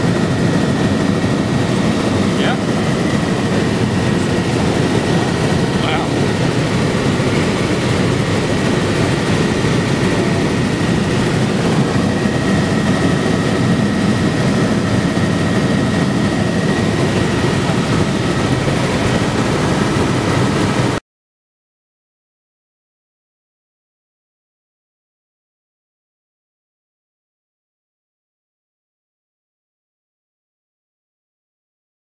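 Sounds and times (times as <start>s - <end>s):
helicopter engine and rotor drone: 0.0s - 21.0s
thin steady whine: 0.0s - 21.0s.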